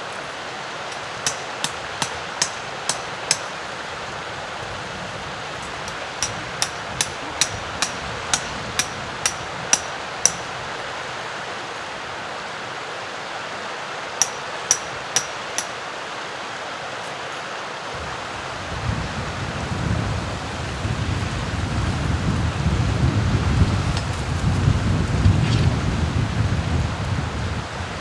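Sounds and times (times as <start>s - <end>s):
stream water running: 0.0s - 28.0s
sharp ringing strikes: 0.9s - 3.6s, 14.2s - 15.8s.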